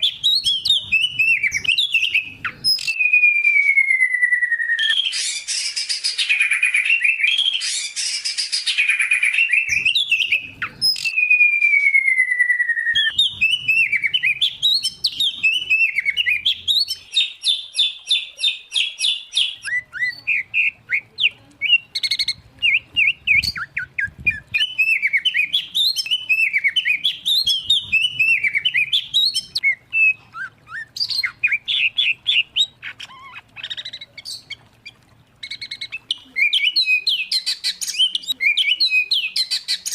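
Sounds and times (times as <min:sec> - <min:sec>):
long falling bird whistle: 0:00.0 - 0:10.3, 0:10.9 - 0:17.0
songbirds singing: 0:00.0 - 0:39.9.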